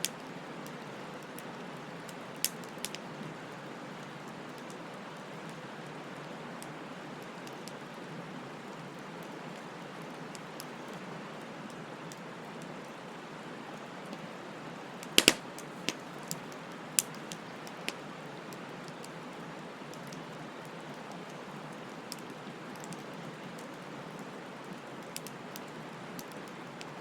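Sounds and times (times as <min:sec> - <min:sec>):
bonfire crackling and popping: 0:02.3 - 0:03.2, 0:13.7 - 0:27.0
bonfire hissing: 0:12.6 - 0:19.2.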